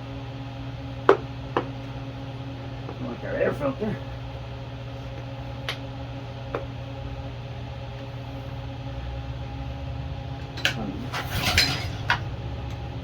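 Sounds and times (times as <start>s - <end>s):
low hum: 10.5s - 12.8s.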